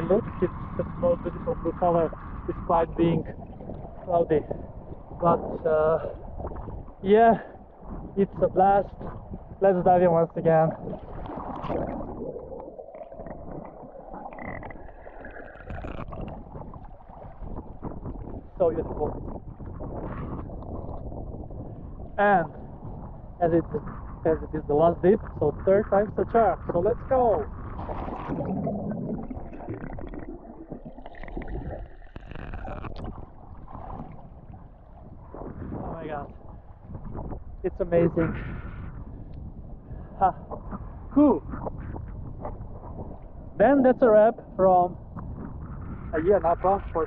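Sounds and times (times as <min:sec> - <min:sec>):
water splashing and gurgling: 0:00.0 - 0:23.4, 0:26.7 - 0:37.8
underwater churning and bubbling: 0:00.0 - 0:47.0
water splash: 0:10.8 - 0:18.0, 0:27.8 - 0:34.5.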